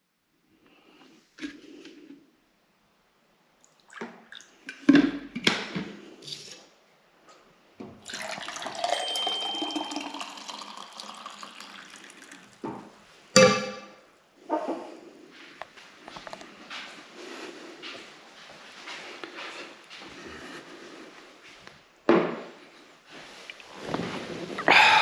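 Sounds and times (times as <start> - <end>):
water running: 8.0 - 12.6.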